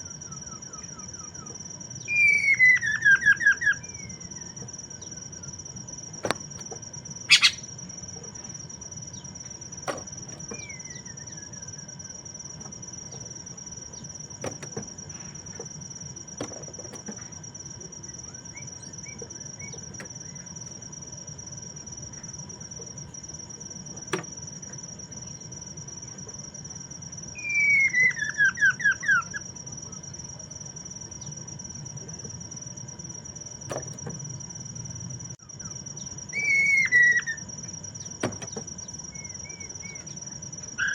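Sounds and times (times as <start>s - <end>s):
bird chirps: 0.0s - 5.6s, 7.3s - 7.8s, 10.4s - 12.1s, 18.0s - 20.5s, 27.3s - 30.3s, 35.4s - 40.9s
faint bird whistle: 0.0s - 5.6s, 7.3s - 7.7s, 10.5s - 12.0s, 18.1s - 20.4s, 27.3s - 30.1s, 35.4s - 37.5s, 39.1s - 40.2s
high insect trill: 0.0s - 40.9s
bird call of quick falling notes: 7.3s - 7.6s.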